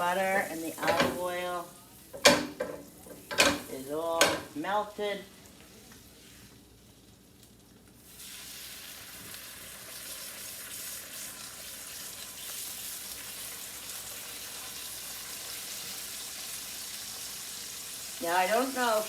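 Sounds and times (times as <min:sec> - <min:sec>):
fish sizzling in a frying pan: 0:00.0 - 0:04.4, 0:05.8 - 0:19.0.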